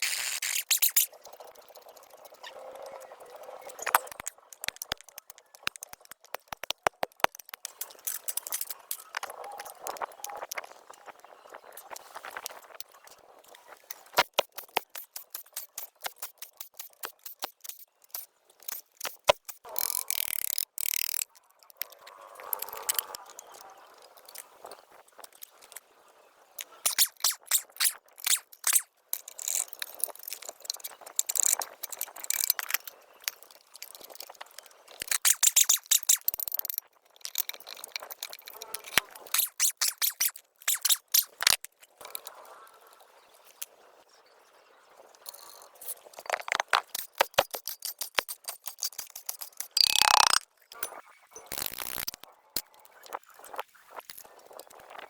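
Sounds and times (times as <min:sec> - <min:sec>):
hand tool scraping and rattling: 0:13.9 - 0:21.2, 0:35.0 - 0:41.6, 0:45.3 - 0:50.4.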